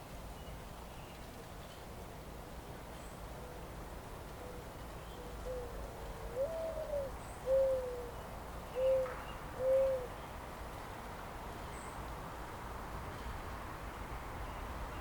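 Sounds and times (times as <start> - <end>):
faint outdoor hiss: 0.0 - 15.0
bird hooting: 6.3 - 8.1, 8.8 - 10.1.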